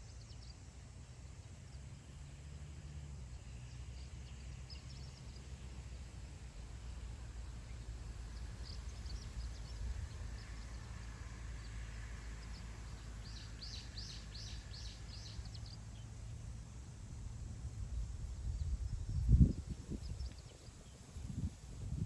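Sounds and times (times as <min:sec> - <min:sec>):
small birds chirping: 0:03.2 - 0:16.5, 0:17.9 - 0:22.0
wind on microphone: 0:17.5 - 0:22.0.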